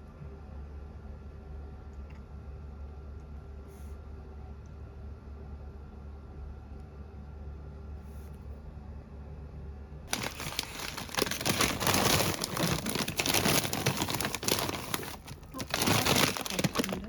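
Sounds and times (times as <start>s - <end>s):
low steady hum: 0.0s - 17.0s
crinkling and rustling: 10.1s - 17.0s.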